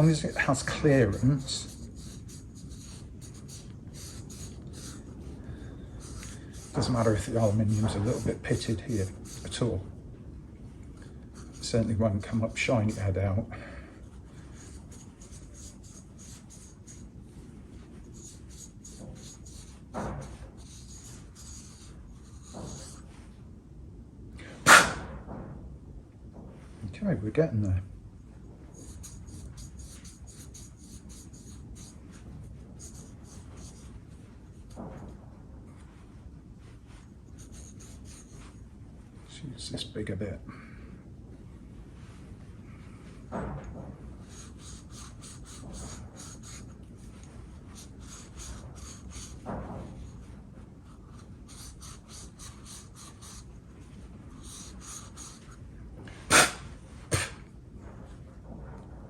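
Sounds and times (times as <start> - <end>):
abrasive pad scrubbing metal: 0.0 - 9.9, 11.3 - 13.4
sharp knocks: 24.7 - 25.6.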